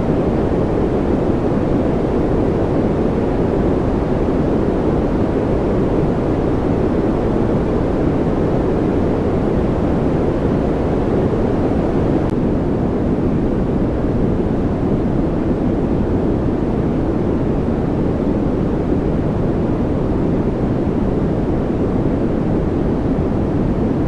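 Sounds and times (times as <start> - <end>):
deep rushing white noise: 0.0 - 12.3.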